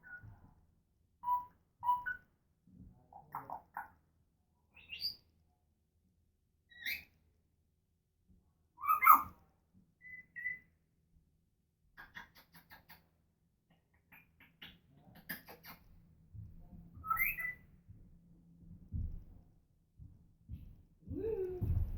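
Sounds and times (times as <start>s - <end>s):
parrot whistling and squawking: 8.8s - 9.3s.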